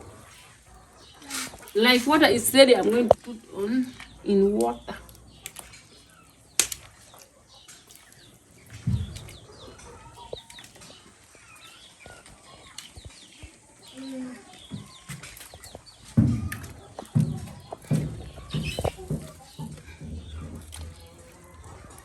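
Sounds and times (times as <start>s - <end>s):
chickens clucking: 0.0s - 22.0s
dull thump: 16.1s - 20.9s.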